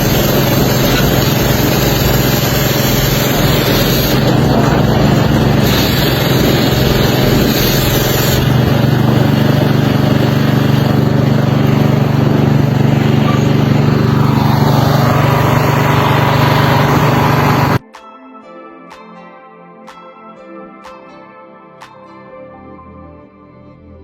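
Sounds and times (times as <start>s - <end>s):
hiss of water spray: 0.0s - 4.7s, 5.6s - 8.5s
pressure washer engine humming: 0.0s - 17.8s.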